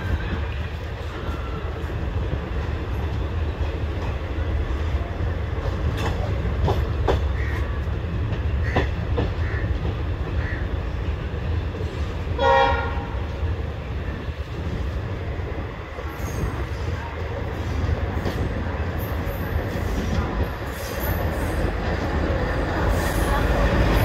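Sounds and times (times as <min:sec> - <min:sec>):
train coach rumble: 0:00.0 - 0:24.0
train horn blast: 0:12.4 - 0:13.2.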